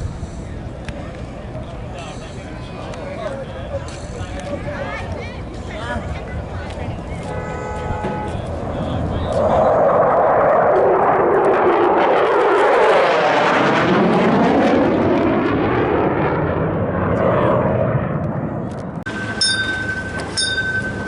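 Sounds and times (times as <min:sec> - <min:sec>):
jet aircraft flying past: 0:08.1 - 0:21.0.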